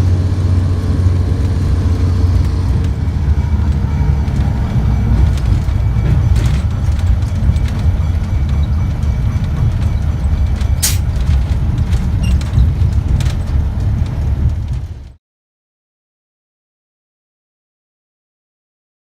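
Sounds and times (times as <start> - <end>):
moving train rumbling: 0.0 - 15.2
sharp metal clank: 10.8 - 11.1.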